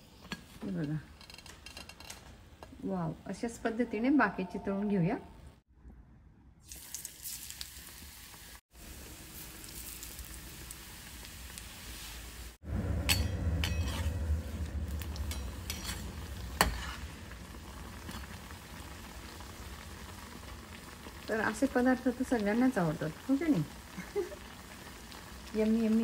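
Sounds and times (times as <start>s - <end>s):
food sizzling in hot oil: 6.6s - 26.0s
metal spoon clinking on pan: 13.1s - 14.1s, 15.2s - 17.0s.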